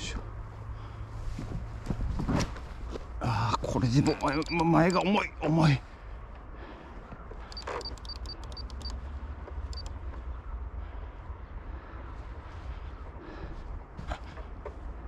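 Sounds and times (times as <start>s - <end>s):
short high beeps: 4.0s - 5.1s, 7.5s - 9.0s.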